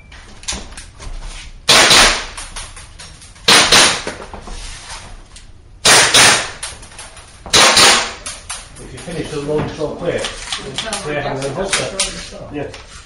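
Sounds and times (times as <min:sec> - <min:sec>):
pistol shots echoing indoors: 0:01.7 - 0:02.4, 0:03.4 - 0:04.1, 0:05.8 - 0:06.7, 0:07.5 - 0:08.4.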